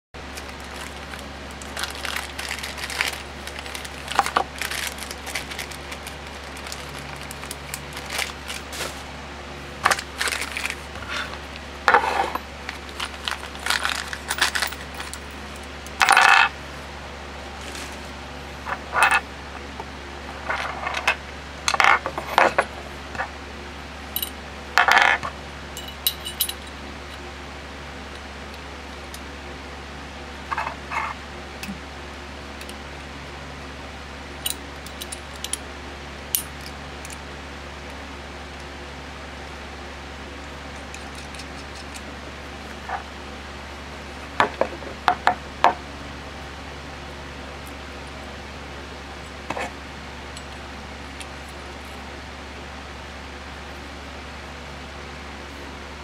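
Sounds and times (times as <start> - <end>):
steady low hum: 0.2 - 56.0
metal parts clinking: 13.0 - 15.3, 16.0 - 16.5, 18.7 - 19.2, 25.8 - 26.8.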